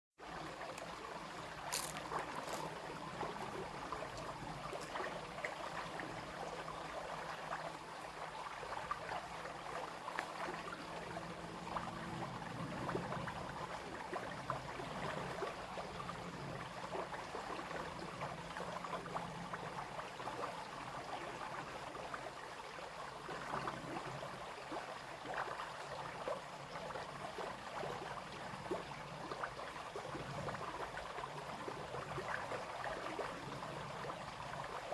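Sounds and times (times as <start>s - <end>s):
brook babbling: 0.2s - 34.9s.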